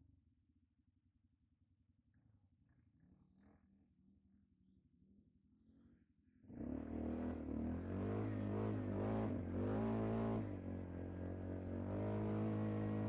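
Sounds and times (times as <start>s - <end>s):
atv engine revving: 6.6s - 10.6s, 11.7s - 13.0s.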